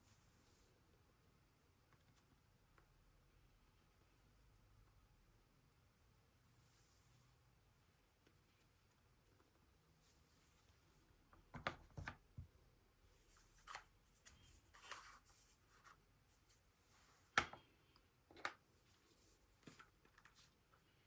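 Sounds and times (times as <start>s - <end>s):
quiet rustling: 13.1s - 21.0s.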